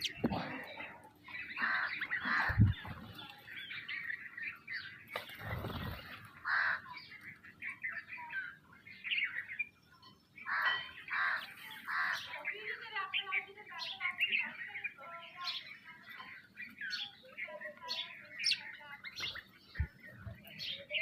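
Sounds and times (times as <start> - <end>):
sparrows chirping: 0.0 - 21.0.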